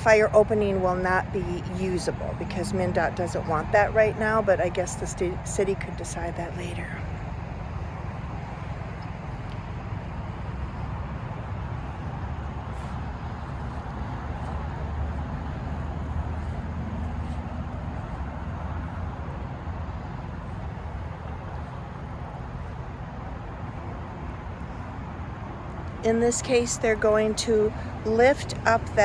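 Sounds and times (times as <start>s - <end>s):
road traffic hum: 0.0s - 29.0s
vehicle passing by: 0.0s - 29.0s.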